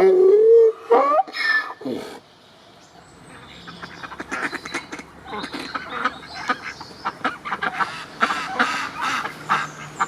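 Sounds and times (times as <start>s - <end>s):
ducks quacking: 3.3s - 10.0s.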